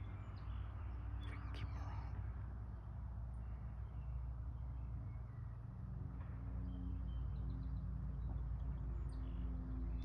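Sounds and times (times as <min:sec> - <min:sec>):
songbird chirps: 0:00.0 - 0:02.3.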